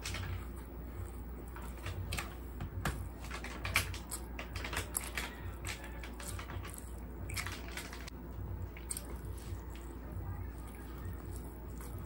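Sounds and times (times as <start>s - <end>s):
low steady hum: 0.0s - 12.0s
person chewing: 4.8s - 12.0s.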